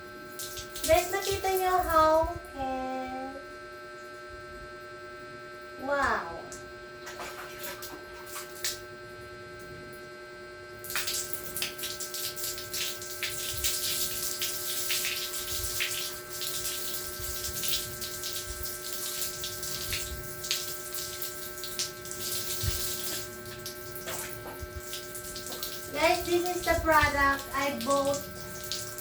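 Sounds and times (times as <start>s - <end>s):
steady electrical hum: 0.0s - 29.0s
running water splashing: 0.3s - 2.1s, 7.0s - 8.8s, 10.8s - 29.0s.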